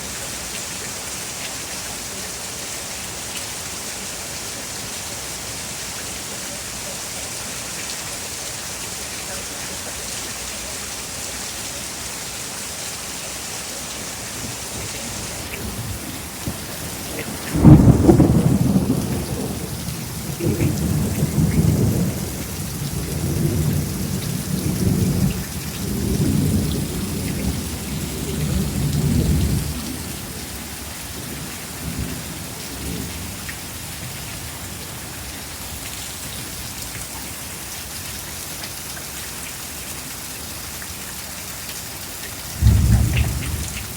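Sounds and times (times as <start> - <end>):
steady rain: 0.0 - 43.9
rolling thunder: 14.4 - 30.6, 42.6 - 43.9.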